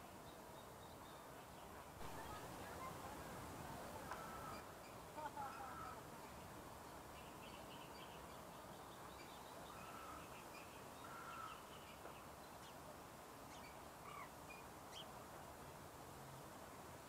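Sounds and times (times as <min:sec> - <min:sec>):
faint bird calls: 0:04.0 - 0:06.4, 0:07.1 - 0:12.8, 0:13.5 - 0:15.1.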